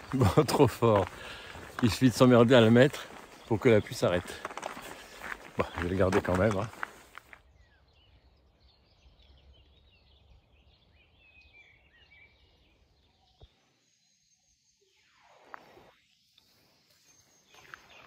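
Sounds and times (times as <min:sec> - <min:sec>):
faint bird chirping: 0:07.4 - 0:18.0.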